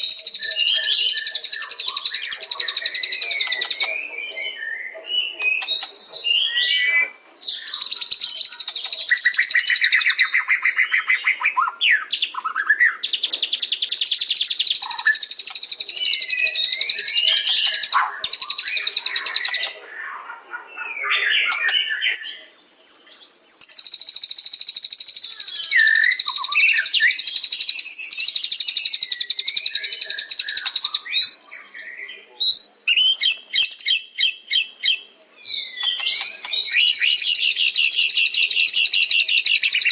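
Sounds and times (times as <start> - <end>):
bird chips: 0.0 - 4.0, 8.0 - 10.3, 35.8 - 39.9
bird singing fast trills: 0.0 - 39.9
bird whistled phrases: 0.0 - 39.9.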